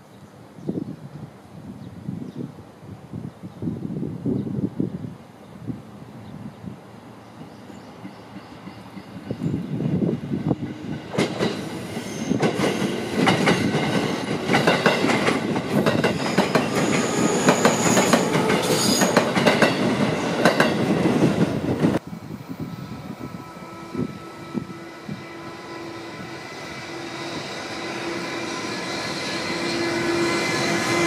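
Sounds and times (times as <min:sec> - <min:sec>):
train wheel squeal: 0:10.5 - 0:19.8, 0:22.6 - 0:31.0
train wheels clattering: 0:10.6 - 0:22.0.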